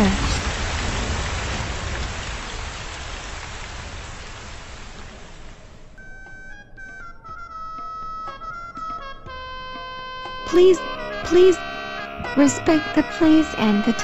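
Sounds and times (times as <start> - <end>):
steady rain falling: 0.0 - 6.1
music with held notes: 5.9 - 14.0.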